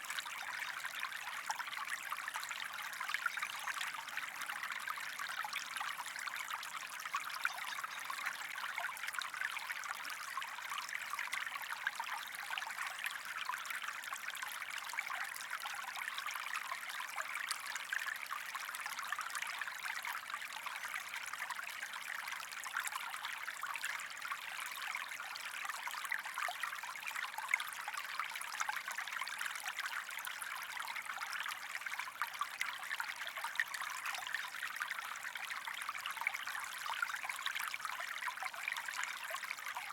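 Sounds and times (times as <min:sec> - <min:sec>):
creek water running over stones: 0:00.0 - 0:39.9.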